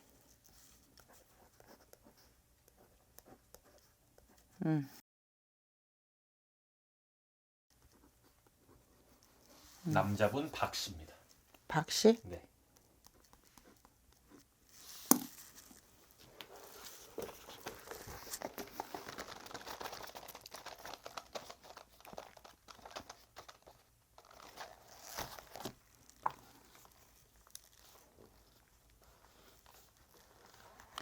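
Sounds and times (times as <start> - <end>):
paper rustling and crinkling: 14.7 - 31.0.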